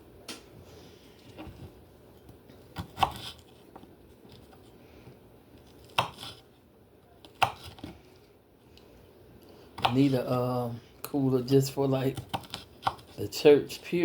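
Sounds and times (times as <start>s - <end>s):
knife chopping on cutting board: 2.7s - 3.4s, 5.8s - 6.4s, 7.3s - 8.0s, 9.8s - 10.2s, 12.1s - 13.2s.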